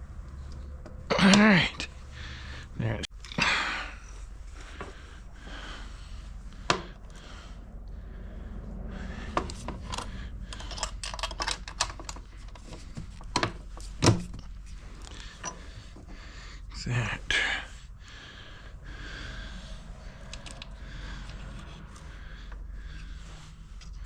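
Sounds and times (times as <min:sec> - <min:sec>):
metal parts clicking and clinking: 0:09.4 - 0:15.7, 0:20.2 - 0:21.4.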